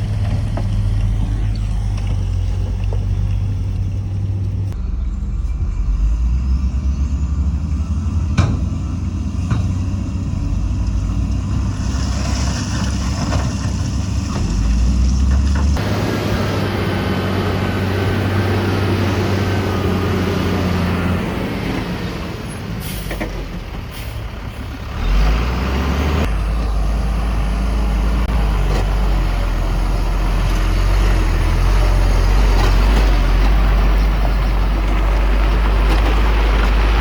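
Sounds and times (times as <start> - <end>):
heavy diesel machinery engine: 0.0 - 37.0.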